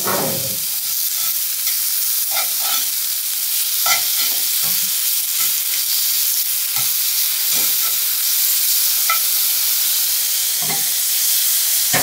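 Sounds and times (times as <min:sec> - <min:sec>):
mushrooms sizzling in oil: 0:00.0 - 0:12.0
metal tongs clicking on pan: 0:01.2 - 0:02.9, 0:03.8 - 0:04.8, 0:09.0 - 0:09.4.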